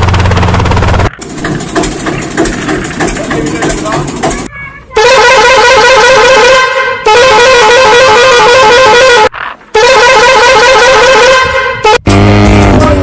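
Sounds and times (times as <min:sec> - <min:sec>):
toy electronic horn warbling: 0:05.0 - 0:12.8.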